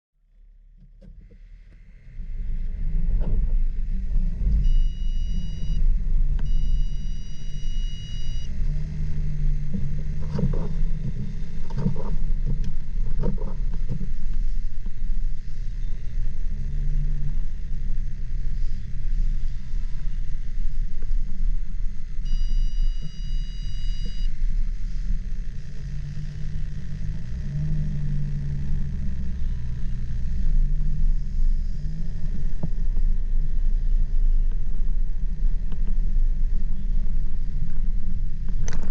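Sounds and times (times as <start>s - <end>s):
car engine and road noise: 0.4s - 38.9s
high electronic tone: 4.2s - 12.6s, 22.2s - 24.4s.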